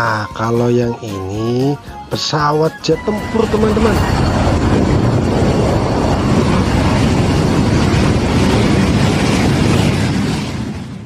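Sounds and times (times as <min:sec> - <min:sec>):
jet engine roar: 0:02.2 - 0:11.0.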